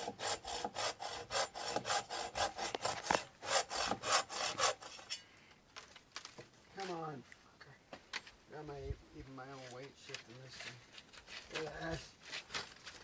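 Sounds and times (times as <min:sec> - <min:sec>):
handsaw cutting wood: 0:00.0 - 0:05.2.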